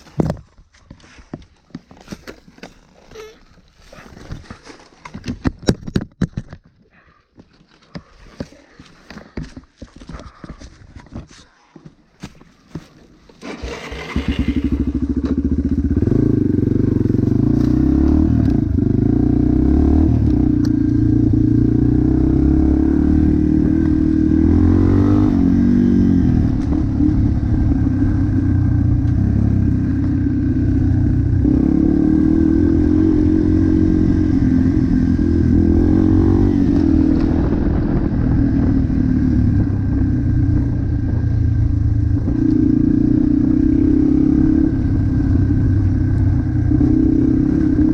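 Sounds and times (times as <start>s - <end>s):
motorbike engine revving: 13.4s - 47.9s.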